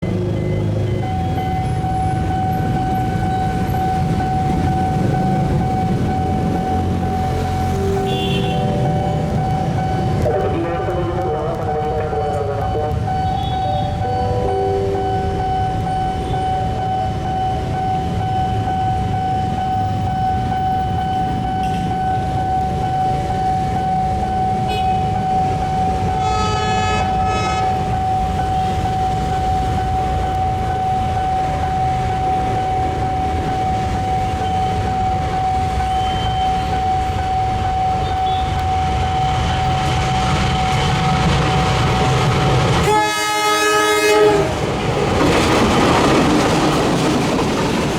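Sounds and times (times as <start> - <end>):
train rumbling past: 0.0 - 47.9
thin high tone: 7.2 - 10.3, 13.1 - 17.1
train horn blast: 7.5 - 9.5, 26.2 - 28.0, 42.8 - 44.9.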